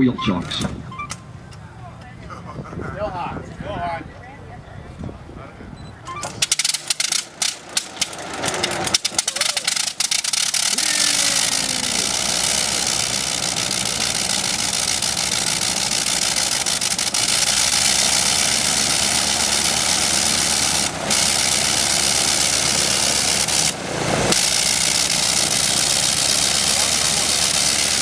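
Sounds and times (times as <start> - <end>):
radial aircraft engine running: 5.8 - 28.0.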